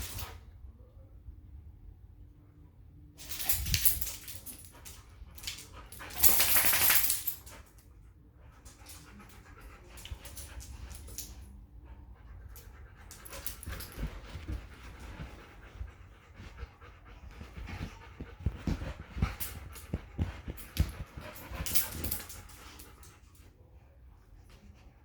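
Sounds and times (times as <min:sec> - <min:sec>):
clicks and rustling: 0:13.1 - 0:23.1.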